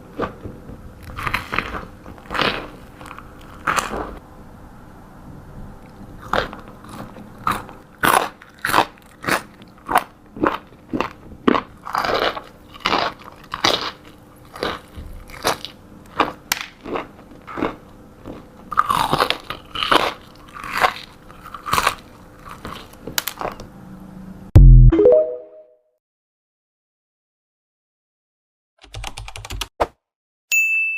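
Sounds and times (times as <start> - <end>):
crunchy bites and chewing: 1.0 - 4.2, 6.2 - 23.7.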